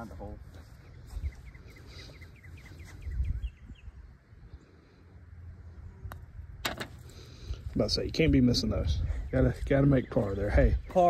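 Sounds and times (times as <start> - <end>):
wind rumble on microphone: 0.5 - 1.6, 2.7 - 4.6, 7.4 - 11.0
bird chirping: 0.8 - 4.7.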